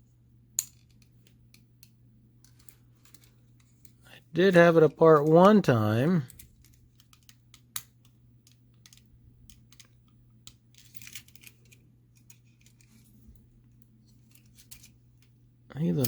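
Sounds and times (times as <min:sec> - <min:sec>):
steady low hum: 0:00.0 - 0:16.0
toy parts clicking and scraping: 0:06.2 - 0:13.2, 0:14.0 - 0:15.3.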